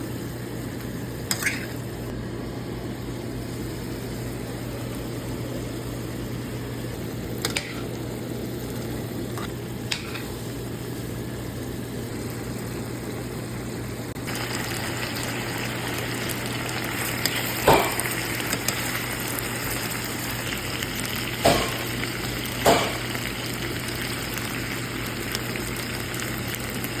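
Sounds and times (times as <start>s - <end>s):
food sizzling in a pan: 0.0s - 27.0s
utensil clacking against pan: 21.4s - 21.8s.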